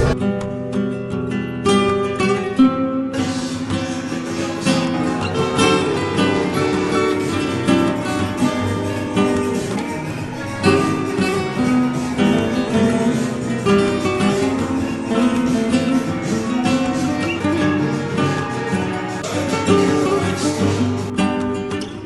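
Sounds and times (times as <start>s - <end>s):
flamenco acoustic guitar: 0.0s - 22.0s.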